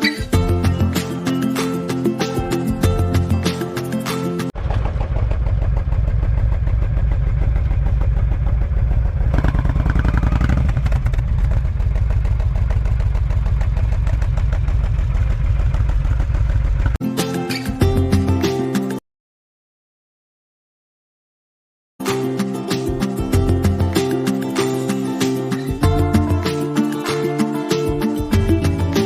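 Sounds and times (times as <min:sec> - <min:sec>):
motorcycle engine running: 0:04.6 - 0:17.0.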